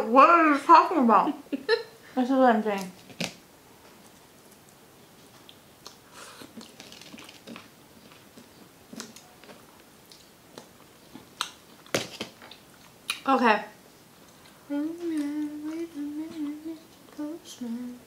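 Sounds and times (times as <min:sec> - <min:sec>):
people chewing crunchy food: 0:04.0 - 0:13.2, 0:14.1 - 0:17.2.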